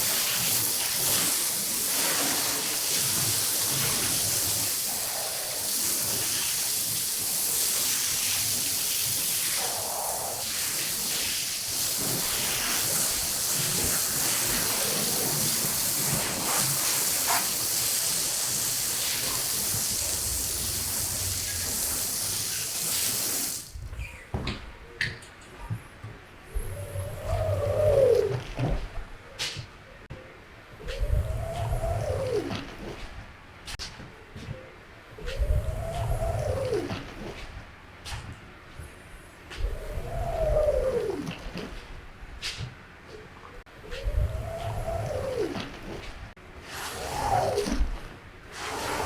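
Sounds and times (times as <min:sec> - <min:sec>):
hissing water spray: 0:00.0 - 0:23.8, 0:46.6 - 0:47.9, 0:48.5 - 0:49.0.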